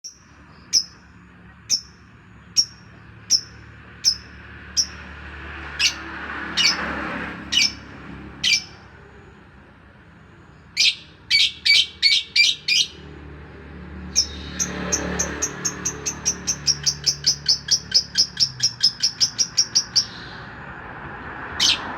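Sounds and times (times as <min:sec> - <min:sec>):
songbird chirping: 0:00.0 - 0:06.0, 0:08.4 - 0:09.4, 0:10.2 - 0:13.1, 0:14.0 - 0:20.6.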